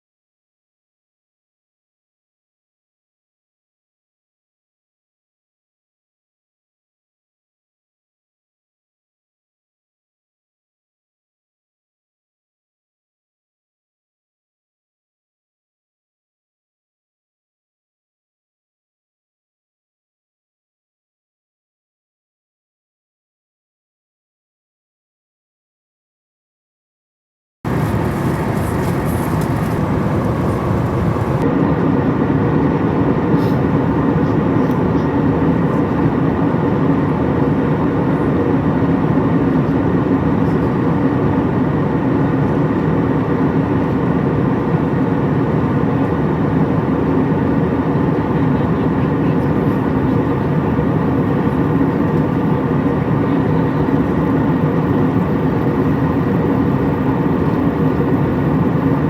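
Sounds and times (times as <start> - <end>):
airliner cabin engine drone: 27.7 - 59.0.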